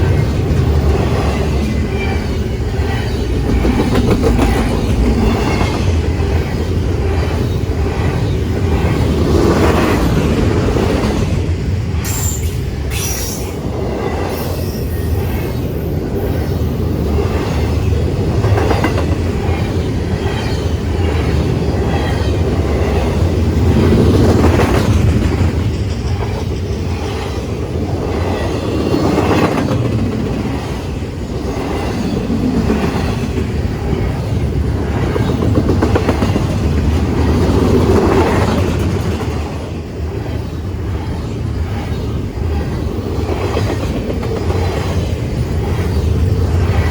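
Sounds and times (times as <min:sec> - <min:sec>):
freight train cars rumbling past: 0:00.0 - 0:46.9
high wheel squeal: 0:12.0 - 0:16.6.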